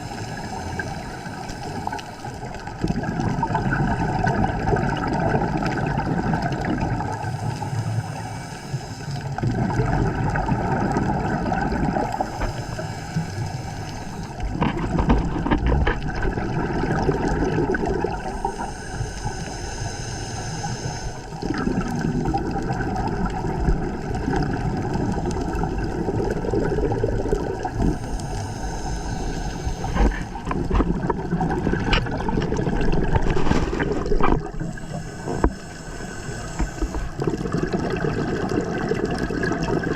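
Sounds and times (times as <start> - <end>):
exhaled bubbles gurgling: 0.0 - 39.9
regulator hissing: 27.8 - 30.4, 34.6 - 37.2.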